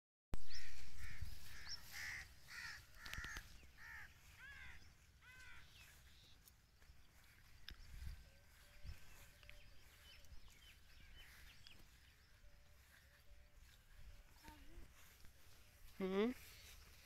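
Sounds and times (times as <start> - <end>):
bird calling: 0.4 - 15.0.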